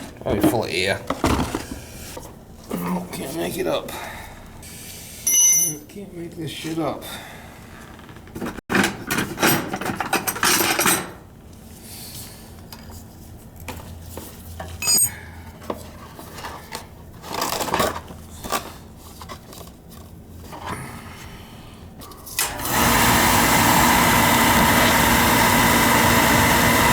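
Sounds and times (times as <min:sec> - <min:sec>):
bright metallic ping: 0:05.3 - 0:05.8
metal tools clinking and scraping: 0:05.3 - 0:06.0, 0:09.2 - 0:11.2, 0:14.6 - 0:15.3.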